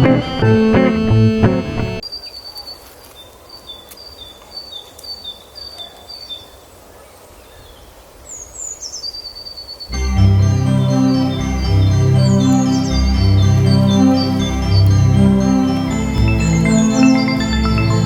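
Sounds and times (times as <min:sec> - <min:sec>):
guitar music: 0:00.0 - 0:02.0, 0:09.9 - 0:18.0
outdoor background hiss: 0:02.0 - 0:10.0.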